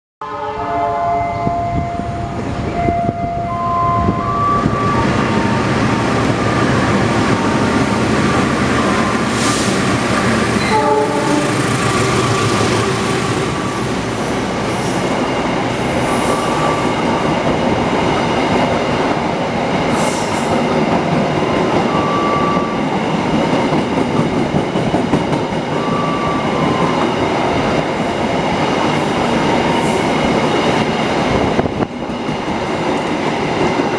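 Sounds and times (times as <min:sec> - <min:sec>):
train horn: 0:00.2 - 0:02.3, 0:10.6 - 0:15.1, 0:21.9 - 0:22.8, 0:25.7 - 0:27.0
train carriages rumbling over rails: 0:01.2 - 0:33.9.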